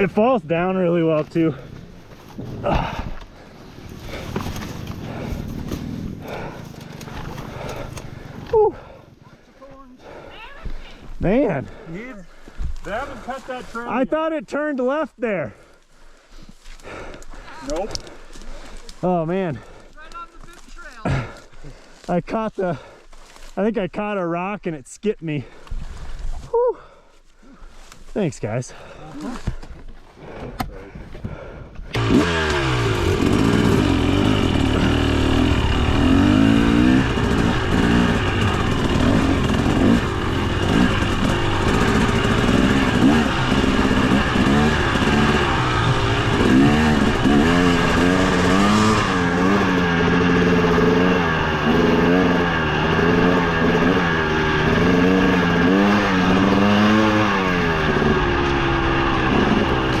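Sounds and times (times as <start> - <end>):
dirt bike engine revving: 31.9 - 60.0.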